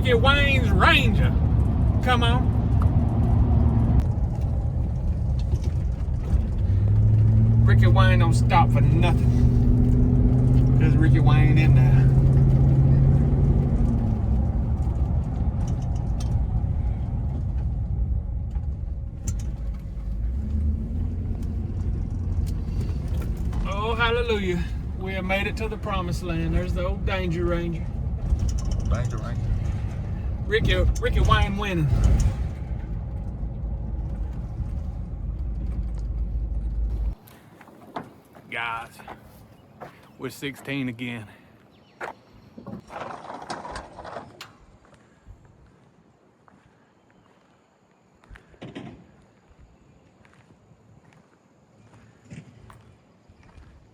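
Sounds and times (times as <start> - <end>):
low engine hum: 0.0 - 37.6
engine and road noise: 0.0 - 53.9.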